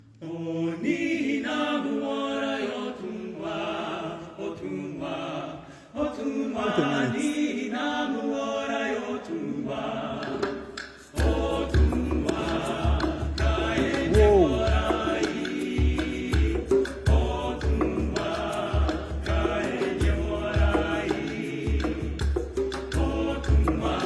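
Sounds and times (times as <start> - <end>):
group singing in harmony: 0.0 - 24.0
deep pulsing bass beat: 14.1 - 14.9.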